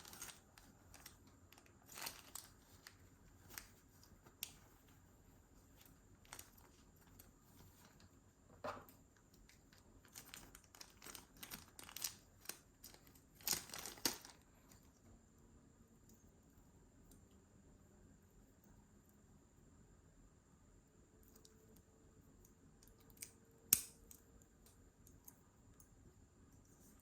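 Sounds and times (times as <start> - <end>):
paper packaging rustling: 0.0 - 5.0.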